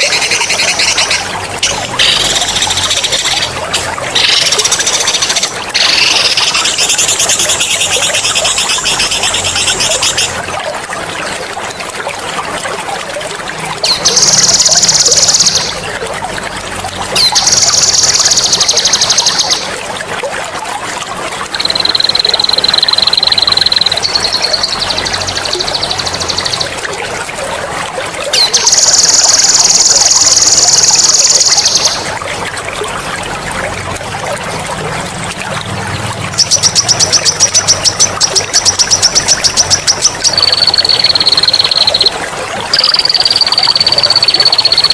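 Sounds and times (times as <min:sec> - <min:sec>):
water trickling: 0:00.0 - 0:44.9
songbird trilling: 0:21.6 - 0:26.7, 0:36.4 - 0:42.1, 0:42.8 - 0:44.9.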